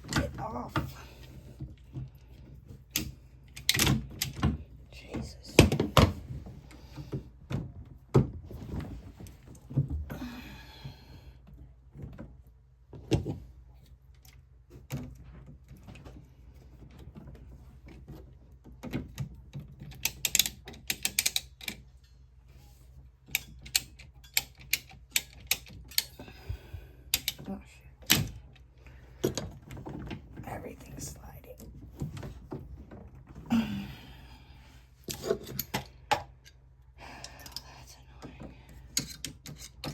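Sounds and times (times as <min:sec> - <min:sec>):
clamps and tools clicking on pipe: 0:18.9 - 0:22.2, 0:23.2 - 0:26.2, 0:27.1 - 0:28.4, 0:38.9 - 0:39.9.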